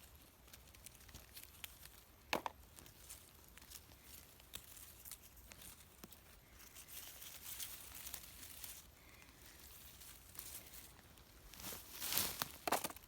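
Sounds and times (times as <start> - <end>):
dry leaves and twigs crackling: 0.0 - 13.0
footsteps through undergrowth: 2.8 - 13.0.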